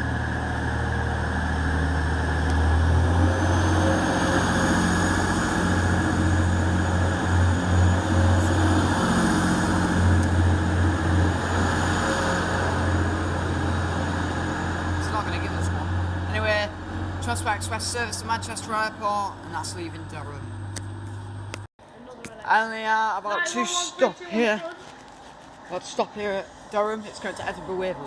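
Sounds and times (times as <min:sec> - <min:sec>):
diesel train engine pulling away: 0:00.0 - 0:20.7.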